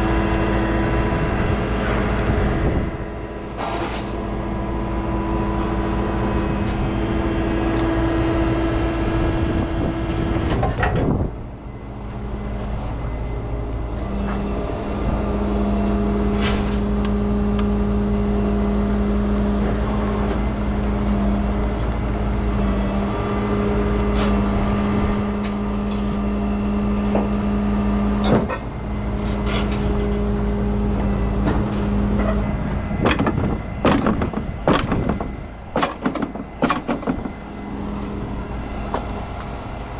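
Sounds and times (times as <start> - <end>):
diesel truck engine running: 0.0 - 39.9
sharp metallic knocks: 33.0 - 37.4.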